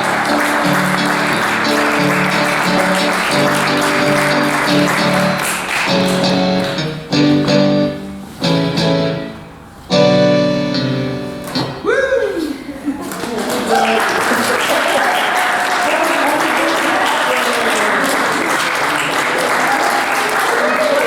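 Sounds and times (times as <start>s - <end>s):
audience applauding: 0.0s - 7.2s, 13.0s - 21.0s
instrumental music sustained chords: 0.0s - 11.9s.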